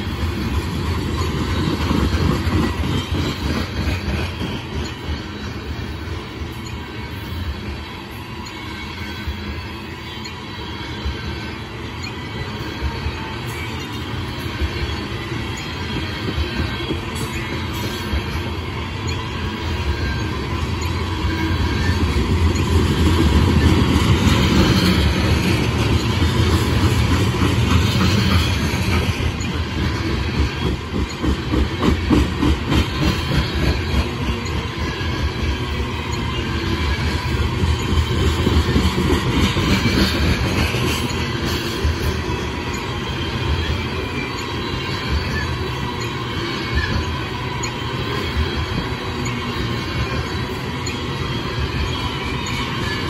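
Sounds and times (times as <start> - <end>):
rhythmic clacking over rail joints: 0.0 - 53.0
train wheels rumbling on rails: 0.0 - 53.0.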